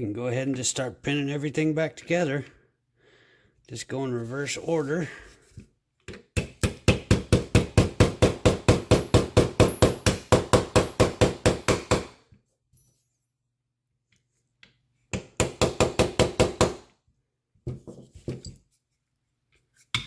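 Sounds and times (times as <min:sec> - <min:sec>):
hammer tapping on metal punch: 0:06.4 - 0:12.2, 0:15.2 - 0:16.8.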